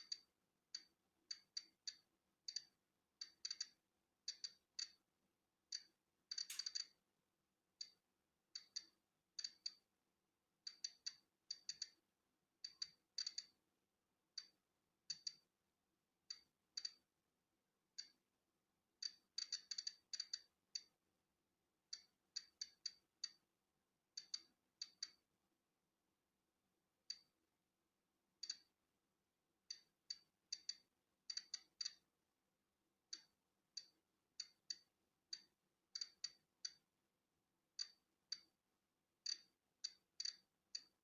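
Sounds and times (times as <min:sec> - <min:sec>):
geiger counter clicking: 0:05.7 - 0:06.9.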